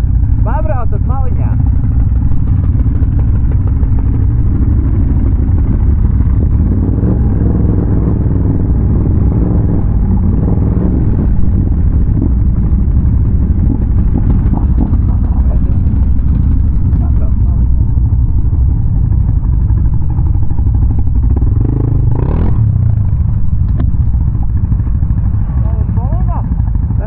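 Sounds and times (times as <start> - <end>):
atv engine rumbling: 0.0 - 27.0.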